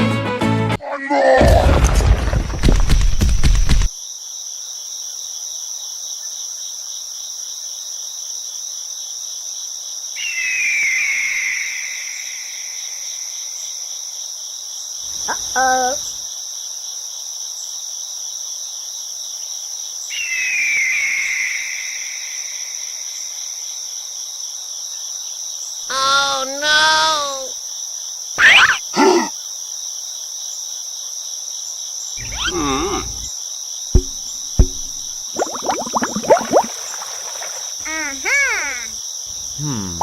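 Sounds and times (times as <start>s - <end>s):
crickets chirping: 2.9s - 40.0s
brief pitched call: 32.2s - 33.3s.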